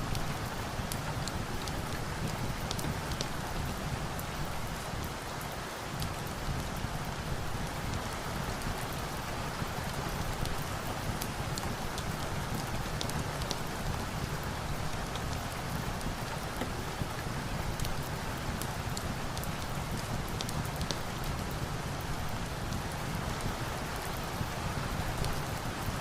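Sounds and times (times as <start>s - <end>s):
steady rain: 0.0s - 26.0s
wood fire crackling: 0.1s - 4.9s, 10.1s - 24.2s.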